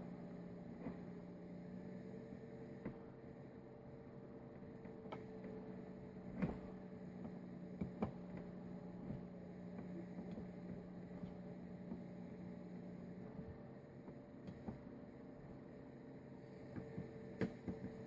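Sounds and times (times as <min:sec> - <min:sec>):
low electrical hum: 0:00.0 - 0:18.0
light clicks and taps: 0:04.8 - 0:05.6, 0:14.1 - 0:14.9.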